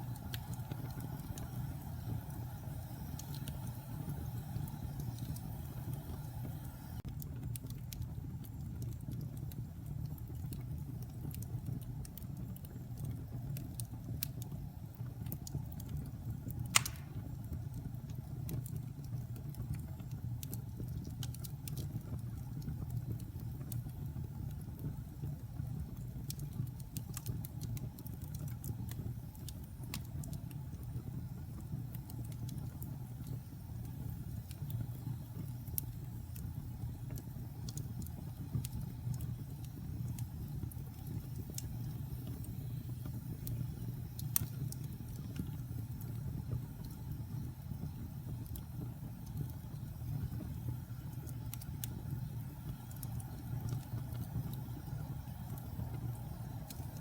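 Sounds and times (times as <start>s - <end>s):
wood fire crackling: 0.0s - 57.0s
sharp loud fire pop: 16.8s - 17.2s.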